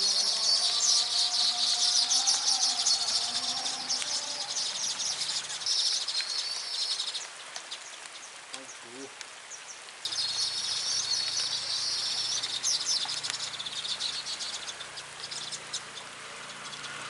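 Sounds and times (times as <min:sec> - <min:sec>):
bird chattering: 0:10.1 - 0:17.0.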